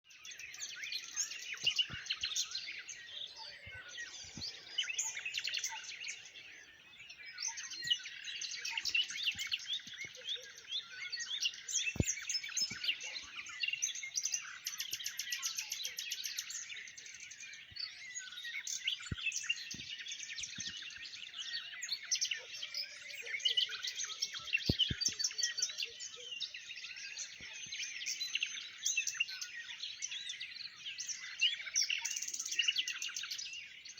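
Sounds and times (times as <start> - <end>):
birds chirping and singing: 0.1 - 33.9.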